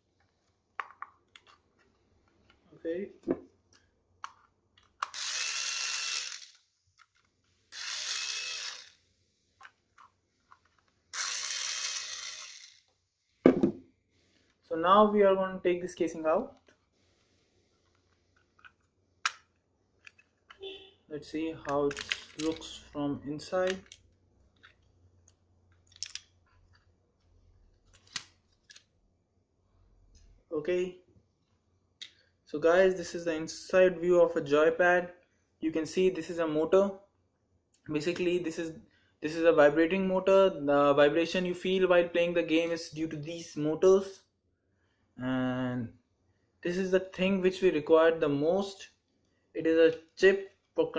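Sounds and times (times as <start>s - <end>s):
power tool motor whine: 5.1s - 6.6s, 7.8s - 9.0s, 11.2s - 12.8s.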